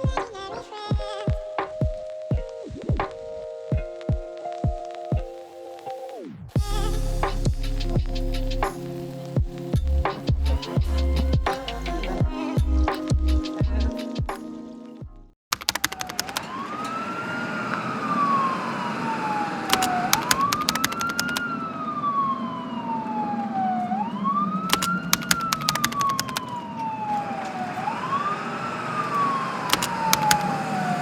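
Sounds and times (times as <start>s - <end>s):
sharp clicks: 15.5s - 16.6s, 19.7s - 21.4s, 24.7s - 26.7s, 29.1s - 30.7s
emergency siren wailing: 16.0s - 31.0s.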